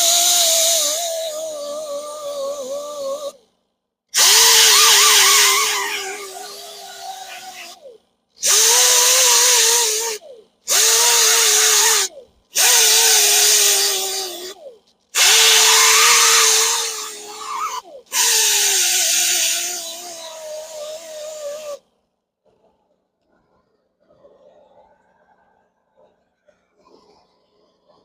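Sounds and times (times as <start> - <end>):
grinder grinding metal wheel: 8.4 - 14.6, 15.2 - 21.8.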